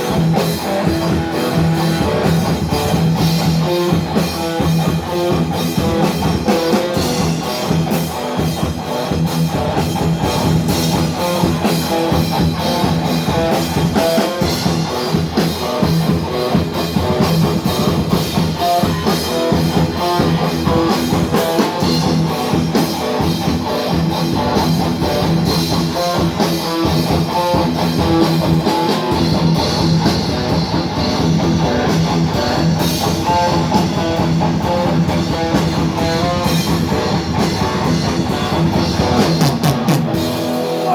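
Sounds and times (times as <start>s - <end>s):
distorted electric guitars: 0.0s - 40.9s
rapid drum hits: 9.4s - 40.9s.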